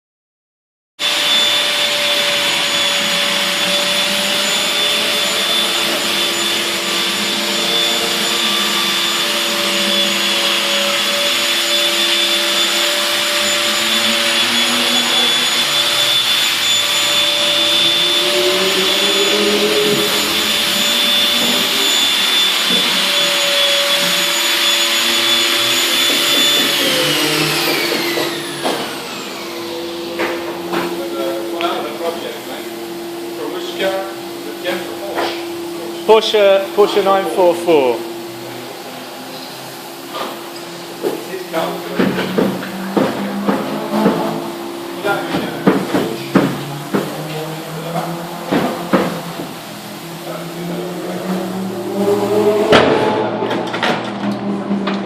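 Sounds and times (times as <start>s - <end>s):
electric motor whining: 1.0s - 55.0s.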